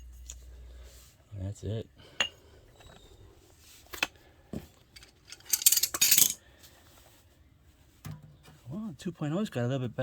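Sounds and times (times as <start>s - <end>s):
small metal parts clinking: 4.9s - 6.4s.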